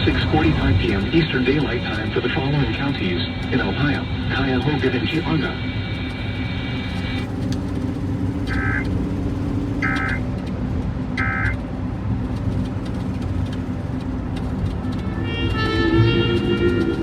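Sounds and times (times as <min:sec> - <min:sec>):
electronic data bursts: 0:05.7 - 0:10.4, 0:11.2 - 0:11.6.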